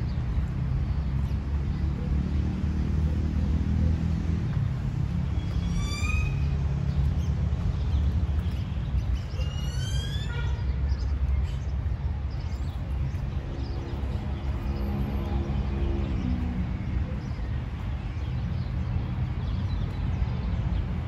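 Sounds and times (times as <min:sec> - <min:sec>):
bird whistling: 0:05.6 - 0:06.5.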